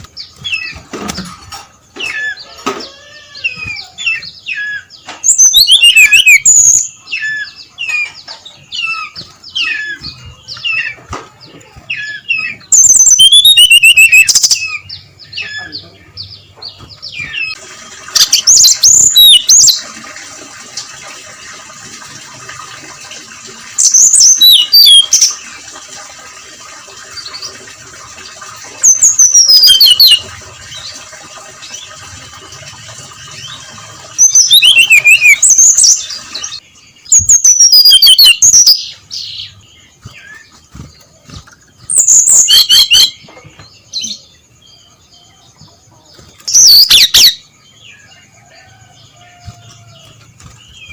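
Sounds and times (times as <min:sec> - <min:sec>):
bird singing whistled notes: 0:03.6 - 0:07.6, 0:11.9 - 0:16.3, 0:18.2 - 0:19.8, 0:23.8 - 0:25.4, 0:28.9 - 0:30.2, 0:34.2 - 0:40.6, 0:41.9 - 0:43.2, 0:46.4 - 0:47.4.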